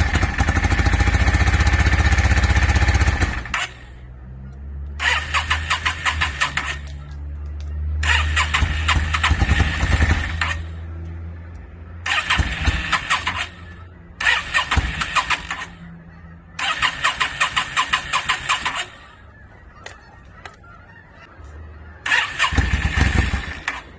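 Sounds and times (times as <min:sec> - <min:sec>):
motorcycle engine running low: 0:00.0 - 0:03.8, 0:08.0 - 0:10.8, 0:12.0 - 0:15.9, 0:22.1 - 0:23.9
motorcycle electric starter cranking: 0:05.0 - 0:06.9, 0:08.0 - 0:10.7, 0:12.0 - 0:13.6, 0:14.2 - 0:15.7, 0:16.6 - 0:19.0, 0:22.1 - 0:23.9.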